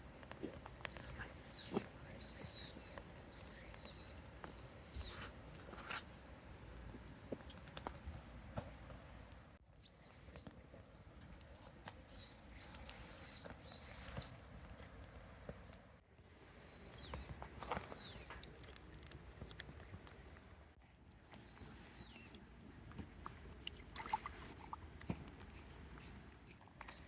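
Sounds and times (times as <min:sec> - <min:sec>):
light clicks and crackles: 0:00.0 - 0:27.0
bird chirping: 0:00.4 - 0:05.9, 0:09.8 - 0:10.7, 0:12.1 - 0:14.4, 0:16.3 - 0:18.6, 0:21.4 - 0:22.4.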